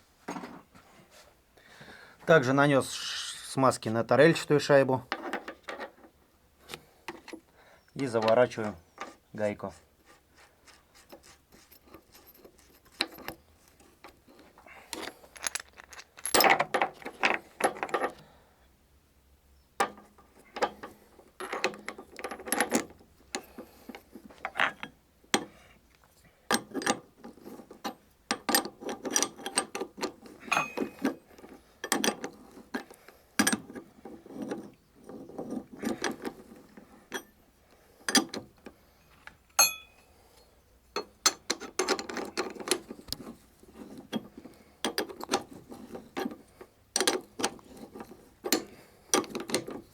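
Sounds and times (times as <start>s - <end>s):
metal tool clinks: 30.4s - 31.2s, 39.6s - 40.1s.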